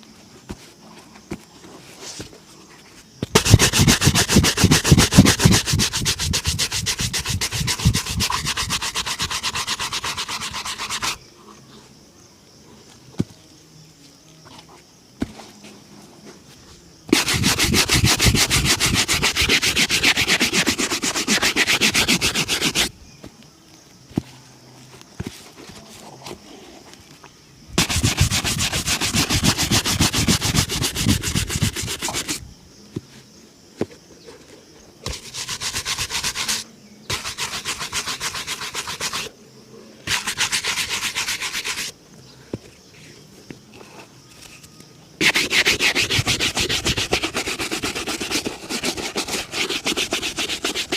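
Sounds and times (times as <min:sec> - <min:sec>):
rubbing strokes on leather shoe: 0:03.2 - 0:11.2, 0:17.1 - 0:22.9, 0:27.8 - 0:32.4, 0:35.0 - 0:39.3, 0:40.1 - 0:42.0, 0:45.2 - 0:50.9.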